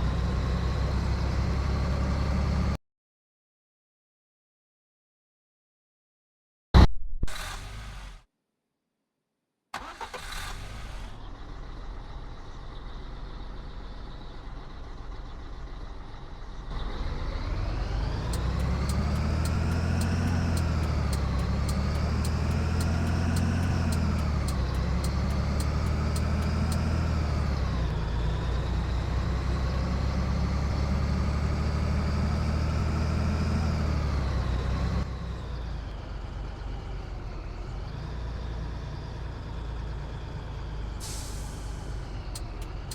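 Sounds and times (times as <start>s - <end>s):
diesel truck engine revving: 16.7s - 42.9s
fast regular ticking: 18.4s - 26.8s.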